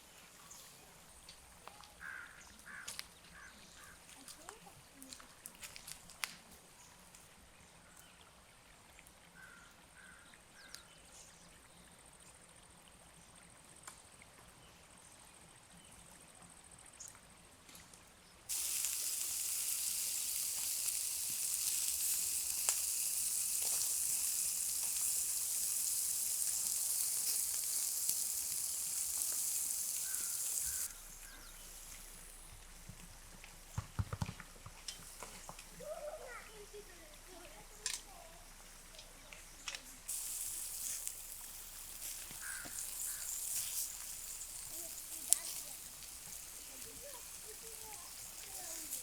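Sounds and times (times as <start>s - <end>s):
food sizzling over campfire: 3.7s - 6.4s, 18.5s - 49.0s
faint ticks: 38.9s - 49.0s.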